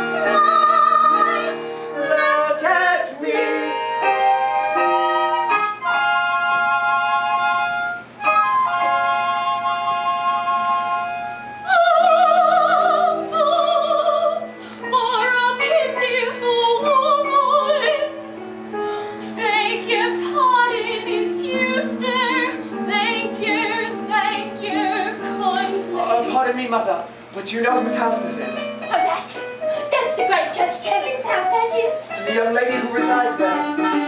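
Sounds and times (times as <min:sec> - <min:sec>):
soprano operatic singing: 0:00.0 - 0:05.5, 0:11.6 - 0:18.3, 0:19.2 - 0:26.4, 0:28.1 - 0:34.0
piano chords: 0:00.0 - 0:34.0.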